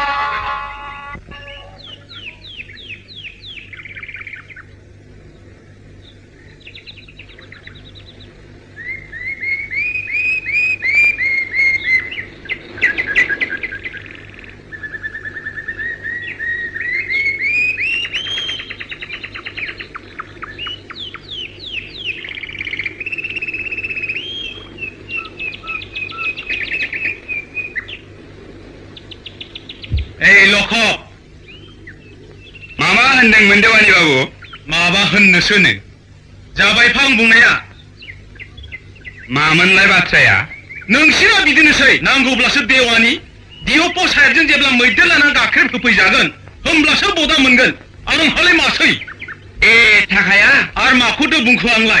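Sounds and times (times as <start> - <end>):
birds chirping and trilling: 0.0 - 52.0
low hum: 0.0 - 52.0.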